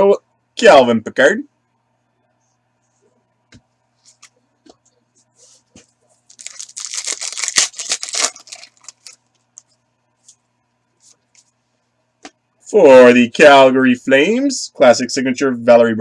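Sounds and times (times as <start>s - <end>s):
wrapper tearing and crinkling: 6.3s - 9.2s.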